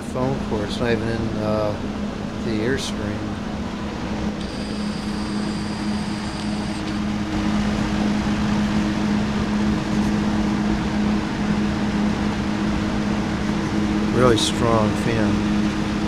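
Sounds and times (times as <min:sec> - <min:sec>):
box fan running: 0:00.0 - 0:16.0
faint high whine: 0:04.3 - 0:16.0.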